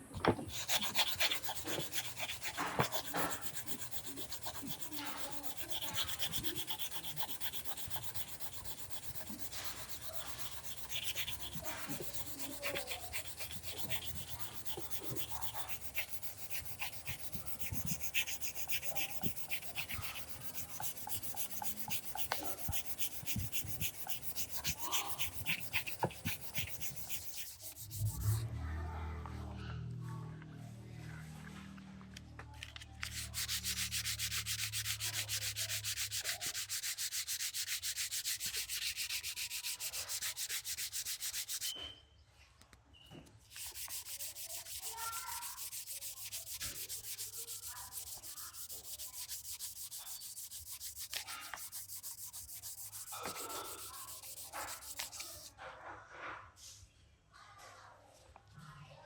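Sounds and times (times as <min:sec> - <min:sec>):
sandpaper rubbing plastic: 0:00.2 - 0:28.4, 0:32.7 - 0:41.8, 0:43.5 - 0:55.5.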